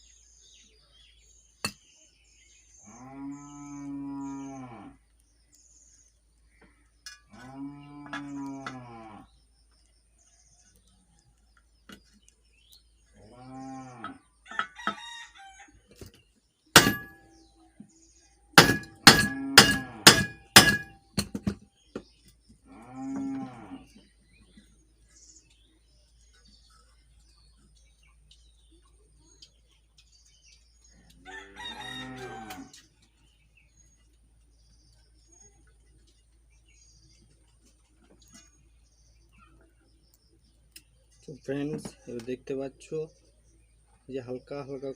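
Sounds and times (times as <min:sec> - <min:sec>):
cow mooing: 0:07.3 - 0:09.3, 0:13.3 - 0:14.2, 0:22.7 - 0:23.9
sharp metallic knocks: 0:16.8 - 0:17.2, 0:18.6 - 0:21.6.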